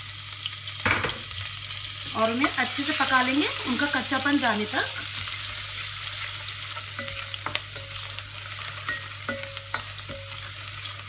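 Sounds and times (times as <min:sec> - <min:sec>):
chillies and garlic sizzling in oil: 0:00.0 - 0:11.0
spatula scraping and tapping pot: 0:07.0 - 0:10.6.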